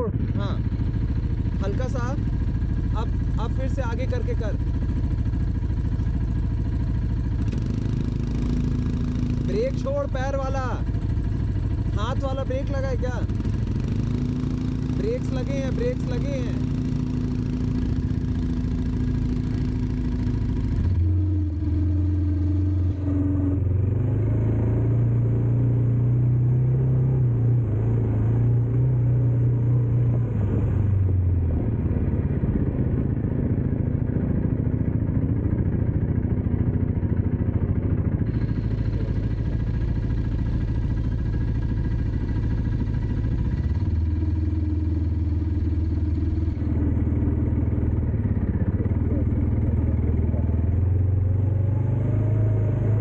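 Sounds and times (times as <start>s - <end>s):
dirt bike engine revving: 7.3s - 9.8s, 13.1s - 34.8s, 38.1s - 53.0s.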